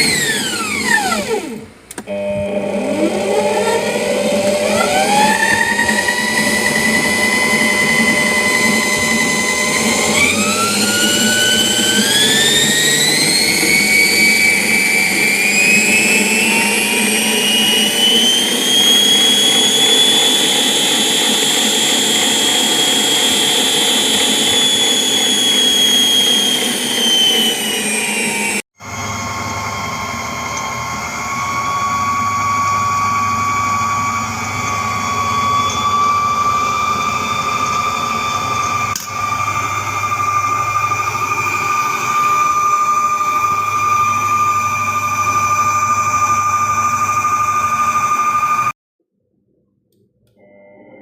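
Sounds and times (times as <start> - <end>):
stand mixer motor whining: 0.0 - 48.8.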